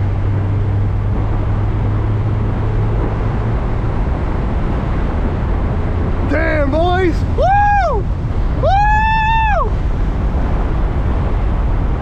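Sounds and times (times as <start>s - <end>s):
car engine running at speed: 0.0s - 12.0s
road and wind noise: 0.0s - 12.0s.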